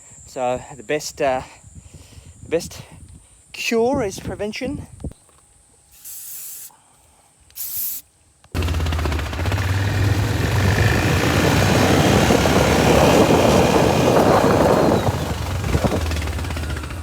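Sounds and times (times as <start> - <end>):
aerosol spray hiss: 5.9 - 6.8, 7.5 - 8.1
loud engine running: 8.6 - 17.0.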